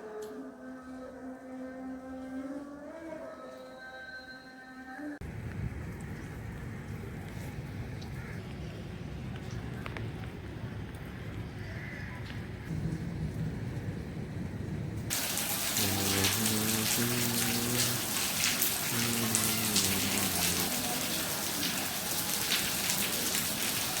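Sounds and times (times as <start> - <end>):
heavy rain falling: 5.3 - 24.0.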